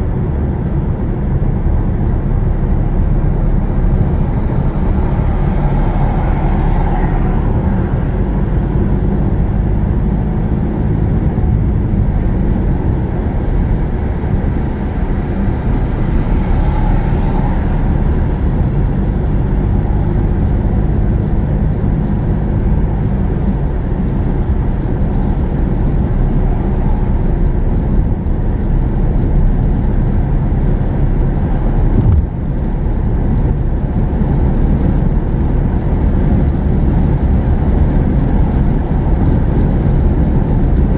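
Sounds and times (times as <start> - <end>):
car engine and tyre rumble: 0.0 - 40.9.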